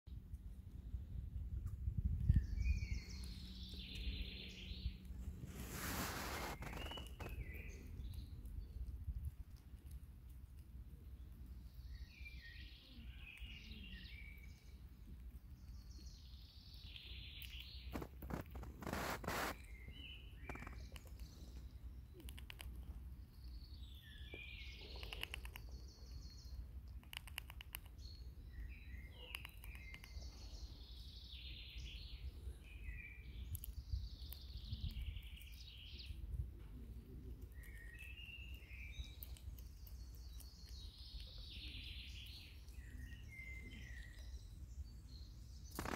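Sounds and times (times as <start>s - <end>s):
small birds chirping: 0.1s - 45.9s
sharp clicks: 22.1s - 22.9s, 24.9s - 25.8s, 26.8s - 28.0s, 45.7s - 45.9s
low outdoor rumble: 27.8s - 45.9s.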